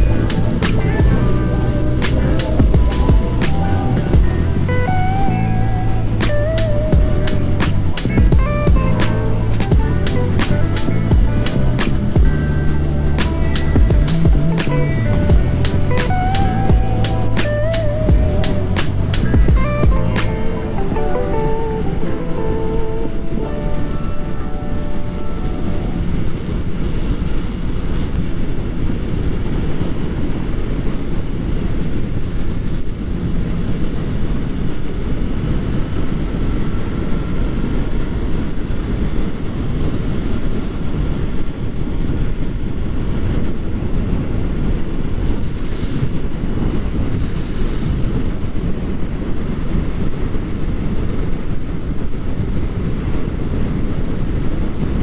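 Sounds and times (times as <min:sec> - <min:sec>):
motorcycle engine running: 0:00.0 - 0:04.6, 0:05.9 - 0:20.4
wind buffeting microphone: 0:00.0 - 0:55.0.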